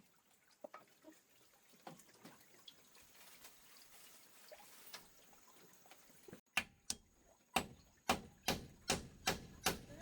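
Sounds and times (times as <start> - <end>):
water dripping and trickling: 0.0 - 10.0
sharp knocks on wood: 7.6 - 10.0.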